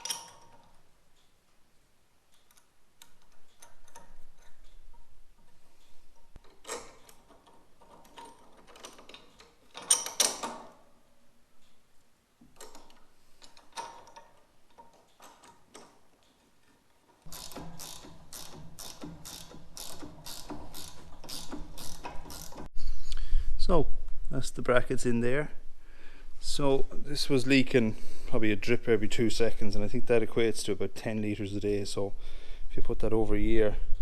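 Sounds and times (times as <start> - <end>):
ratchet clicking: 17.2 - 22.7
tool clicks: 17.2 - 22.7.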